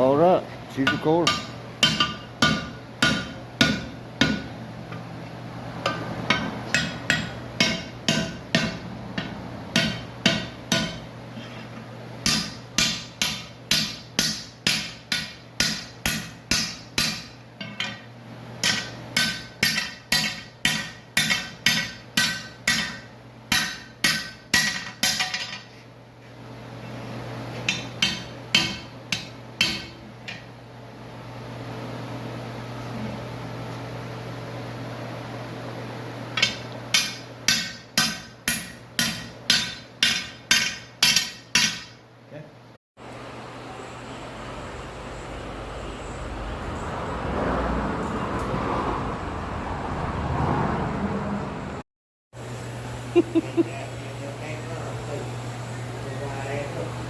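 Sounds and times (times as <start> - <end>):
steady low hum: 0.0 - 47.3
hammer ringing on hot iron: 0.7 - 4.6, 5.8 - 11.2, 12.2 - 25.7, 27.6 - 30.6, 36.4 - 42.0.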